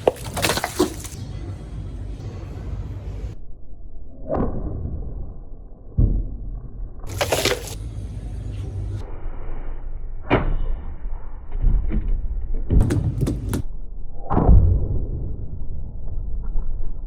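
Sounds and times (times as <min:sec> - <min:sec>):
sharp knocks and clacks: 0:12.8 - 0:13.7.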